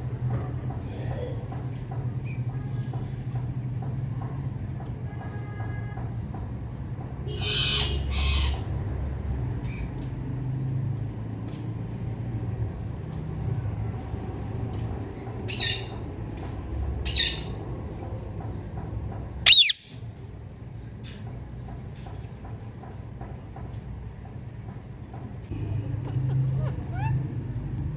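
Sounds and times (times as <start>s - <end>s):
parakeet squawking: 15.5s - 16.0s, 19.4s - 20.0s, 26.1s - 27.4s.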